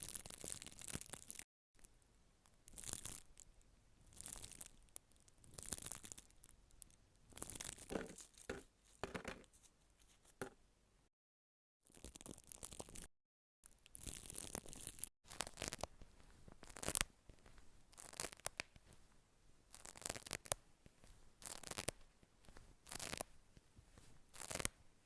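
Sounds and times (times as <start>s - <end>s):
crinkling and rustling: 7.4s - 10.5s.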